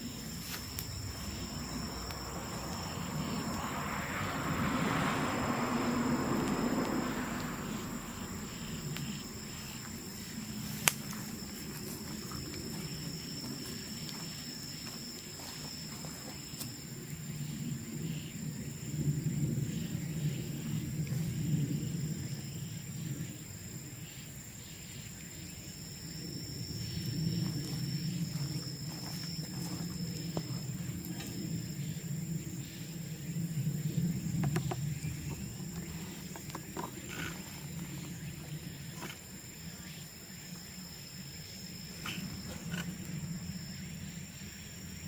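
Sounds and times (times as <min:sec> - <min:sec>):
low rumble: 0:00.0 - 0:13.9
insects trilling: 0:00.0 - 0:45.0
bamboo bonfire crackling: 0:08.8 - 0:12.7.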